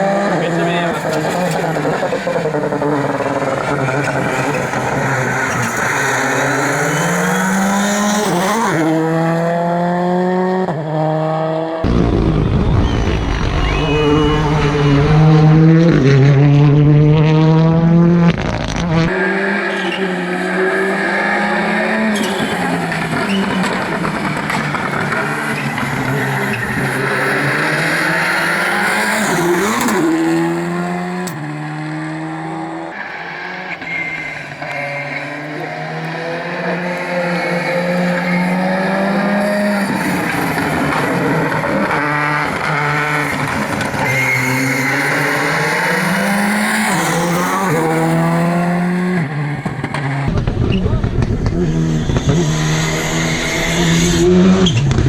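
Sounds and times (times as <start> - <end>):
cars passing at speed: 0.0 - 55.0
rally car engines revving: 0.0 - 55.0.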